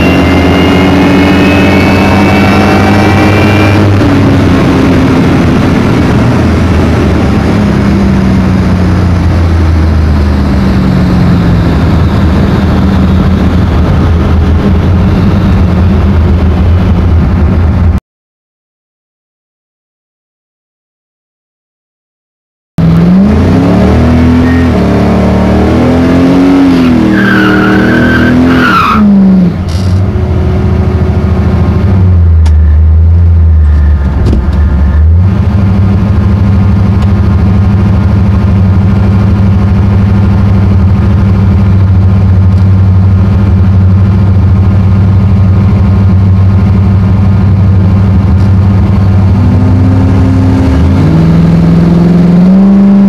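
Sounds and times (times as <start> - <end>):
tyre squeal: 0.0 - 3.9, 24.3 - 24.8, 26.8 - 30.0
car engine revving: 0.0 - 18.0, 22.8 - 53.0.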